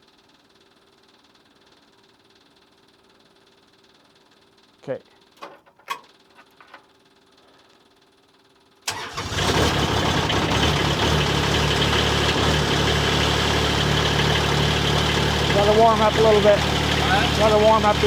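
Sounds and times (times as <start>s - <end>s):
diesel engine cranking and idling: 8.9s - 18.0s.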